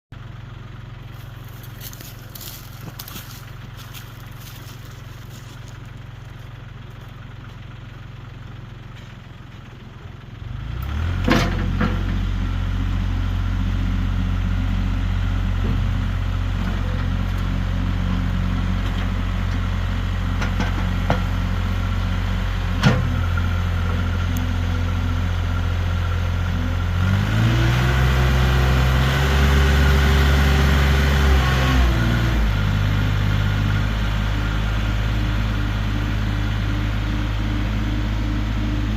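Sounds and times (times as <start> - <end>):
diesel engine idling and revving: 0.0 - 38.9.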